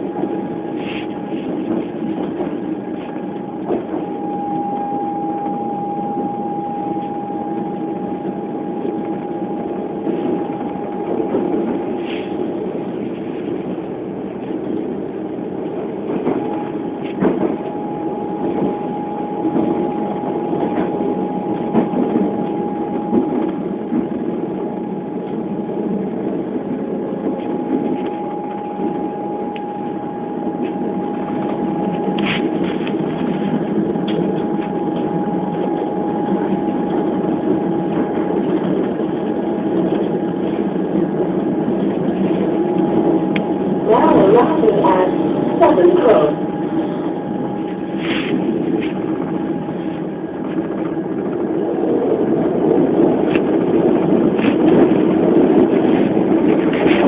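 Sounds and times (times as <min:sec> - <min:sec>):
train rumble: 0:00.0 - 0:57.0
thin high whine: 0:03.0 - 0:12.5, 0:27.4 - 0:38.2.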